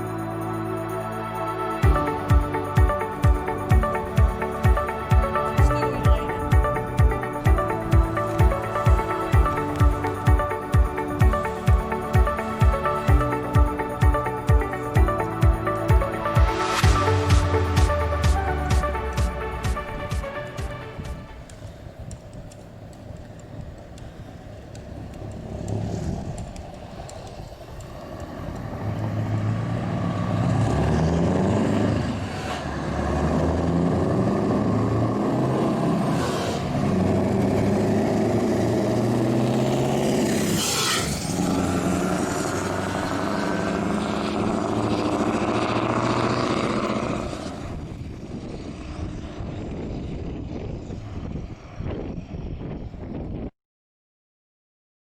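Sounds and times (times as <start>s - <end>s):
truck engine through open exhaust: 0.0s - 53.4s
brief high hiss: 36.1s - 36.7s, 40.5s - 41.2s.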